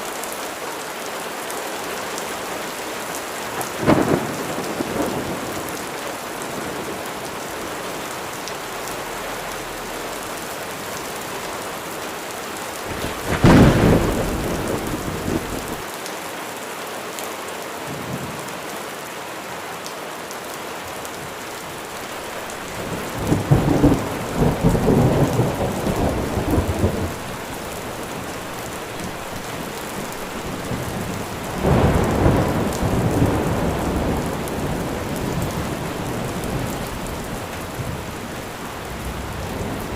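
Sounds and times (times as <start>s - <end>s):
steady rain falling: 0.0s - 39.9s
thunder clap: 3.6s - 5.7s, 12.8s - 15.8s, 22.5s - 39.9s
rolling thunder rumble: 3.6s - 7.9s, 12.8s - 15.8s, 22.2s - 39.9s.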